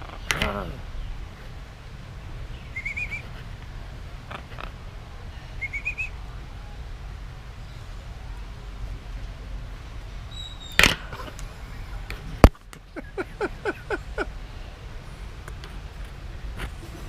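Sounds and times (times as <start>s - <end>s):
parrot chirps falling in pitch: 10.3s - 10.8s.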